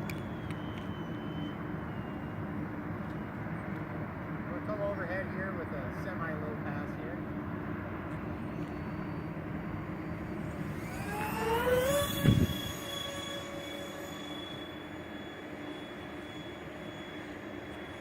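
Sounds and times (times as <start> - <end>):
electric fans whining: 0.0 - 18.0.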